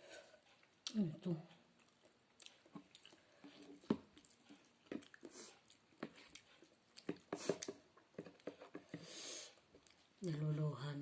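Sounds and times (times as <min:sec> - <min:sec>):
chewing and wet mouth sounds: 0:00.4 - 0:10.2
hissing intakes of breath: 0:09.0 - 0:09.6.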